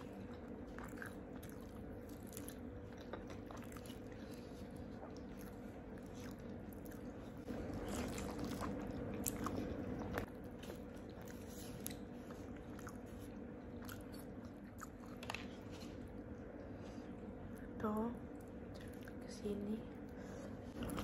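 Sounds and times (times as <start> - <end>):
chewing crispy chicken: 0.0 - 16.2.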